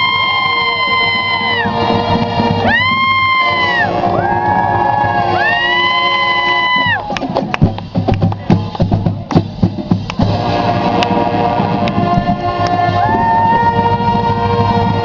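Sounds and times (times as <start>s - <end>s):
brass chords: 0.0s - 15.0s
marching band drums striking: 6.7s - 15.0s.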